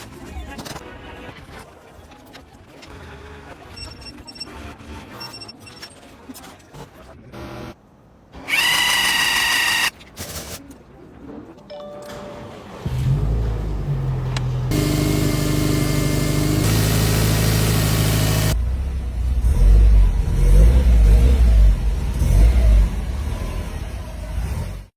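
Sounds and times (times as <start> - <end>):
car engine starting and running: 12.4 - 24.9.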